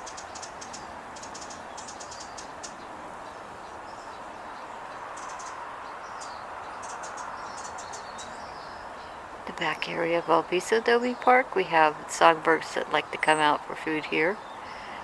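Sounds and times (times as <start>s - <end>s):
songbirds chirping: 0.0s - 15.0s
steady background hum: 9.4s - 15.0s.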